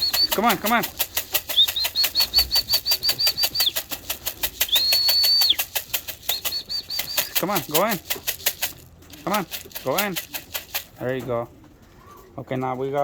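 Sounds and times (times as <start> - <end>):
high whistle chirps: 0.0 - 0.4, 1.5 - 3.8, 4.6 - 7.4
steady rhythmic rattle: 0.0 - 11.4.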